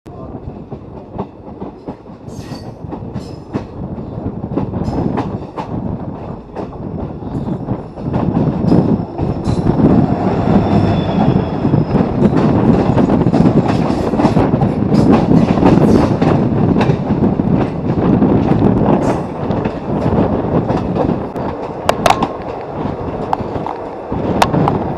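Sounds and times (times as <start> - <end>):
train wheels clacking over rails: 0.2 - 24.9
high wheel squeal: 8.9 - 12.4.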